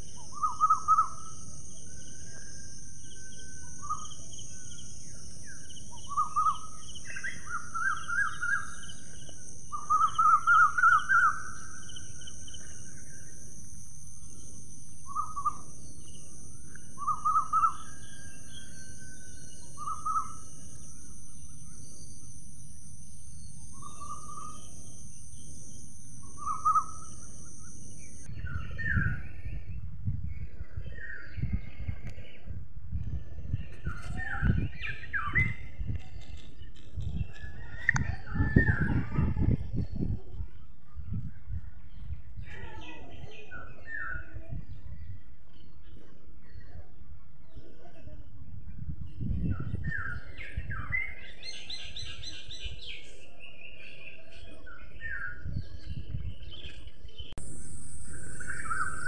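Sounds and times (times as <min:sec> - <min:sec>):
high-pitched insect drone: 0:00.0 - 0:29.8, 0:57.4 - 0:59.0
songbirds chirping: 0:00.0 - 0:59.0.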